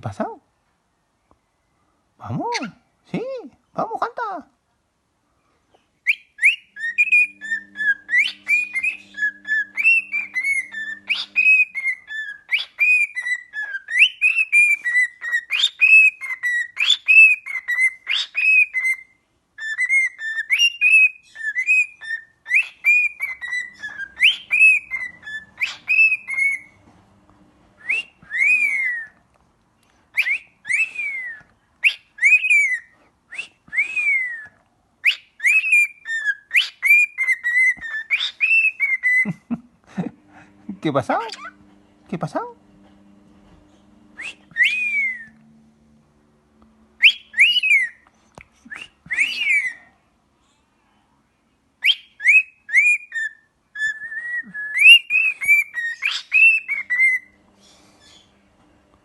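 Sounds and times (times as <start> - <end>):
bird whistling sliding notes: 6.1 - 19.0, 19.8 - 26.8, 27.8 - 29.2, 44.1 - 45.5, 47.0 - 48.0.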